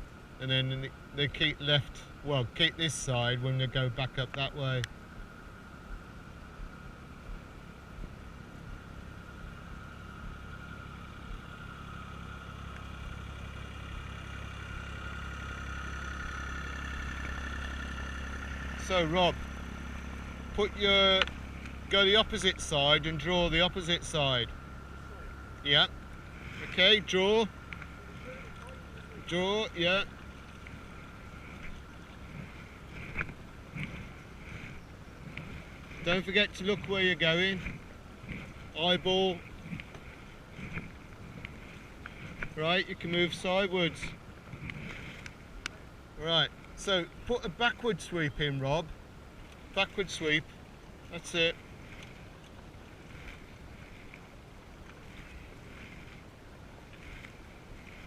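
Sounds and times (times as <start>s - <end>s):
boat engine running: 0.0s - 58.0s
paddle splashes: 24.5s - 46.7s, 48.9s - 58.0s
wind noise on microphone: 30.2s - 43.0s, 43.9s - 45.8s.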